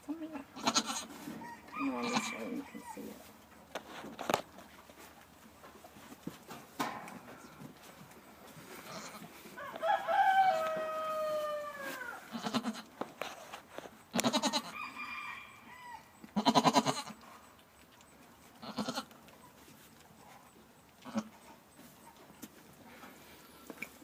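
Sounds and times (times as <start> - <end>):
goat bleating: 0.6 - 1.1, 1.8 - 3.0, 8.8 - 9.3, 11.3 - 12.9, 14.1 - 14.8, 16.2 - 17.2, 18.6 - 19.2, 21.0 - 21.4
rooster crowing: 1.4 - 3.0, 9.6 - 12.3, 14.4 - 16.2.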